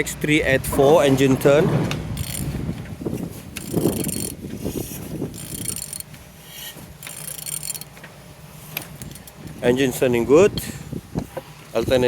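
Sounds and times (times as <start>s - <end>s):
engine clunking as it rotates: 0.0s - 12.0s
wrench ratcheting clicks: 2.2s - 2.5s, 3.6s - 4.4s, 5.3s - 6.1s, 7.0s - 7.9s.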